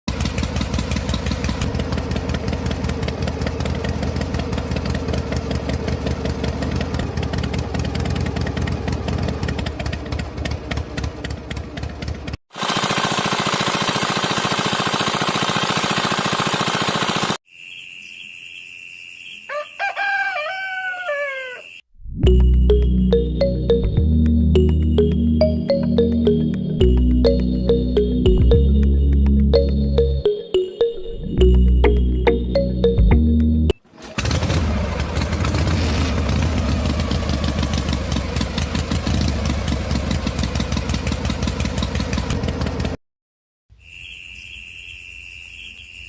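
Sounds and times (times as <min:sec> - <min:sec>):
model diesel engine running: 0:00.1 - 0:17.4, 0:34.0 - 0:43.0
rooster crowing: 0:19.4 - 0:21.8.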